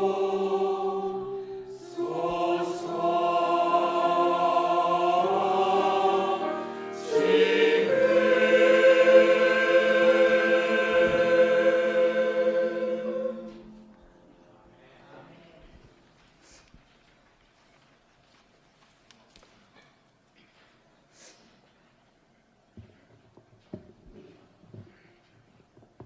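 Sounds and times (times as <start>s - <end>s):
choir singing long chords: 0.0s - 14.0s.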